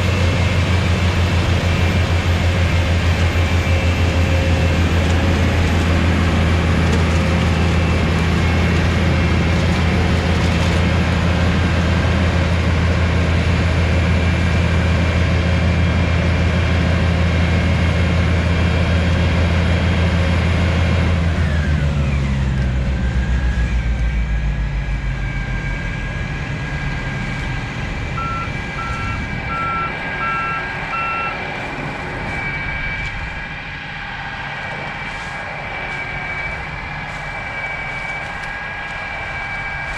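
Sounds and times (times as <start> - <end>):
diesel engine running: 0.0 - 39.9
quick electronic beeps: 28.2 - 31.4.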